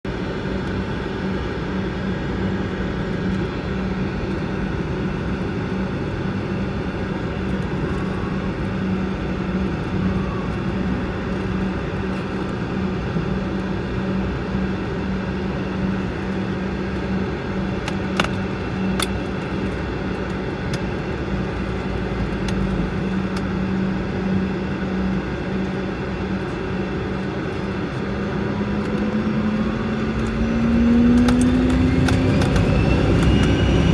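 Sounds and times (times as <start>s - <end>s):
aircraft cabin engine hum: 0.1s - 33.9s.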